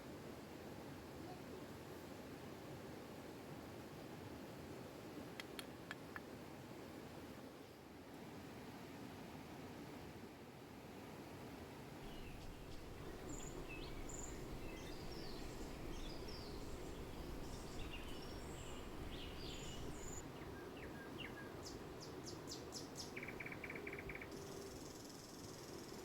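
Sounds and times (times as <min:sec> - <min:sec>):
bird fast trill: 0:12.0 - 0:20.2
low rushing noise: 0:12.0 - 0:20.2
songbirds chirping: 0:12.0 - 0:25.9.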